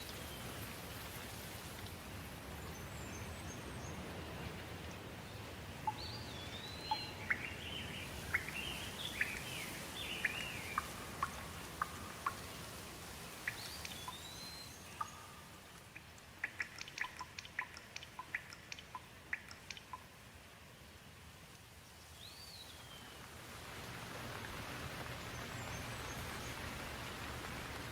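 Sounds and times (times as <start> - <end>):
light rain: 0.0 - 27.9
birds chirping: 5.3 - 20.1
sharp dripping ticks: 5.7 - 20.3.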